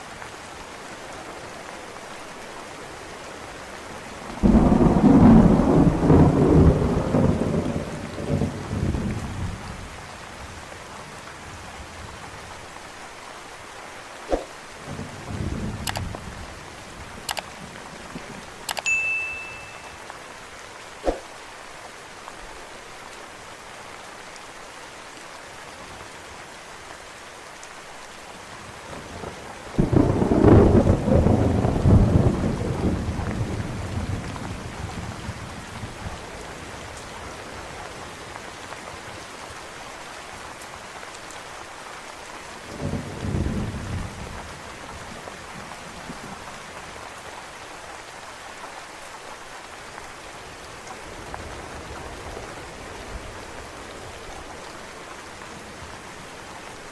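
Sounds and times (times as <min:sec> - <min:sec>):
steady rain: 0:00.0 - 0:56.9
thunder rumbling: 0:04.3 - 0:09.9, 0:28.9 - 0:36.7.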